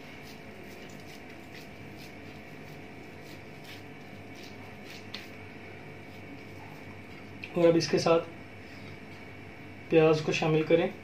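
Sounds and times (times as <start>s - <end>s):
raw minced meat squelching: 0.0s - 5.4s
low room hum: 0.0s - 11.0s.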